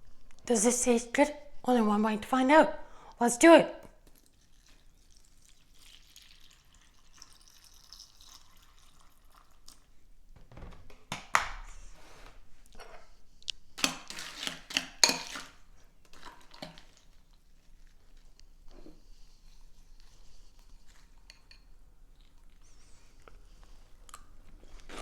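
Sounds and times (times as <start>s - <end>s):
liquid sloshing and dripping: 4.0s - 10.0s.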